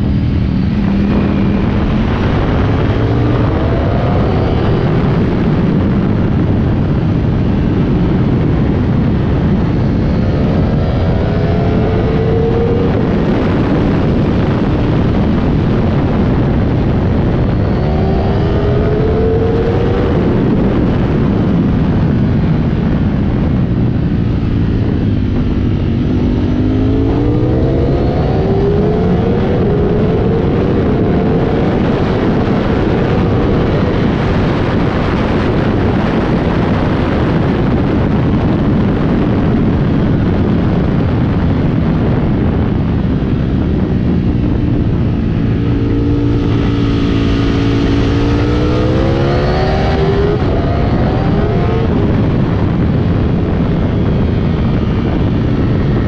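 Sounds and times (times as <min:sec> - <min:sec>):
motorcycle engine revving: 0:00.0 - 0:56.0
wind rushing: 0:00.0 - 0:56.0.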